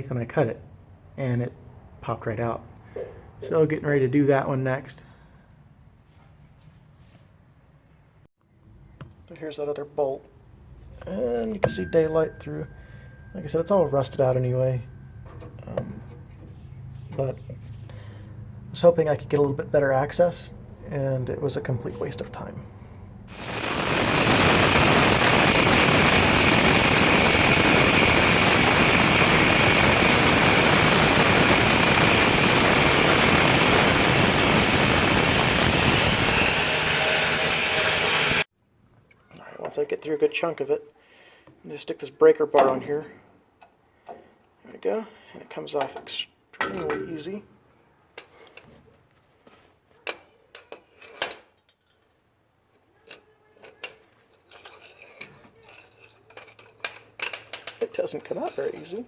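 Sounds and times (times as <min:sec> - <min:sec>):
angle grinder cutting steel: 0:23.3 - 0:38.5.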